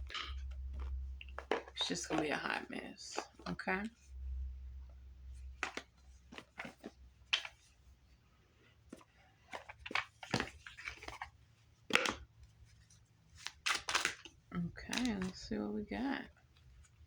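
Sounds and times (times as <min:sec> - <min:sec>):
small objects clicking and tapping: 0:00.0 - 0:02.3.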